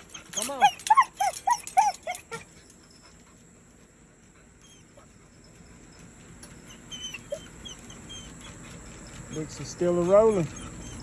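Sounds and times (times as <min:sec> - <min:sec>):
dog yelping: 0:00.0 - 0:02.6, 0:06.6 - 0:08.6, 0:09.3 - 0:11.0.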